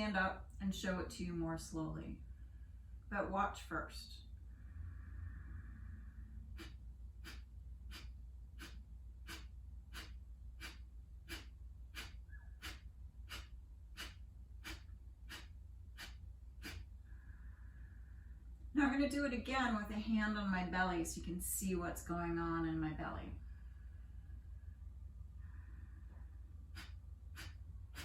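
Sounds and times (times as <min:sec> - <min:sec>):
sharp forced exhales through nose: 0:04.6 - 0:18.4, 0:25.4 - 0:28.0.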